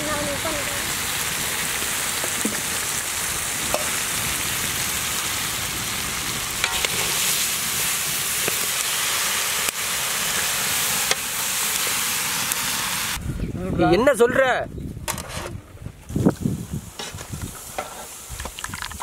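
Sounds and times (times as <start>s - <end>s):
crabs frying sizzle: 0.0s - 13.2s, 16.1s - 19.0s.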